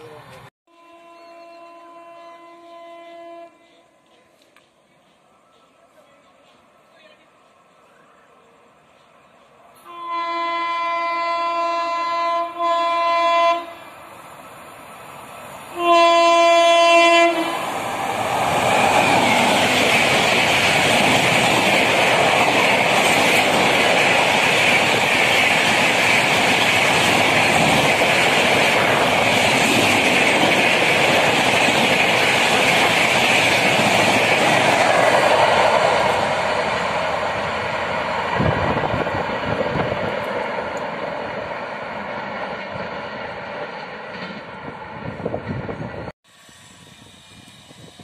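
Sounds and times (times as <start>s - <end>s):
train passing at speed: 0.0s - 48.0s
locomotive horn blast: 0.7s - 4.0s, 9.8s - 13.9s, 15.7s - 17.6s.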